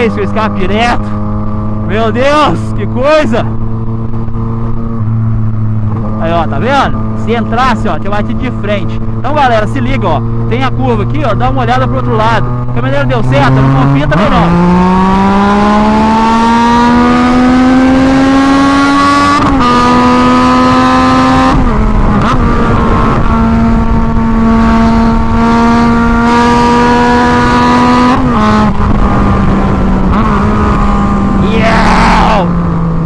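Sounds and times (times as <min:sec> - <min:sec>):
loud motorcycle engine: 0:00.0 - 0:33.0.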